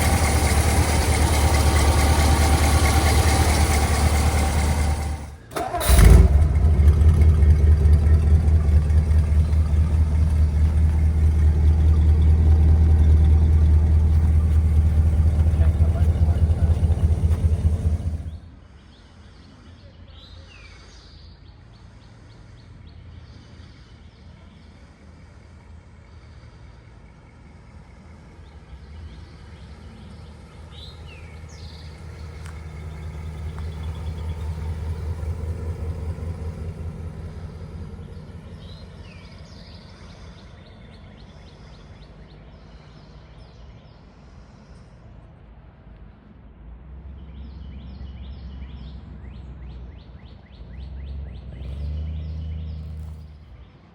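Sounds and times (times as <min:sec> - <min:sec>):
car engine running loud: 0:00.0 - 0:18.5, 0:30.3 - 0:39.4, 0:51.0 - 0:53.4
birds chirping: 0:06.8 - 0:19.2, 0:28.7 - 0:43.8.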